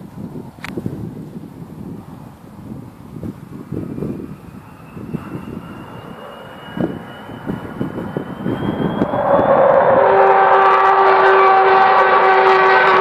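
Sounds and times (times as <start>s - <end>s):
jet engines howling: 0.4s - 13.0s
thin rising whistle: 3.4s - 13.0s.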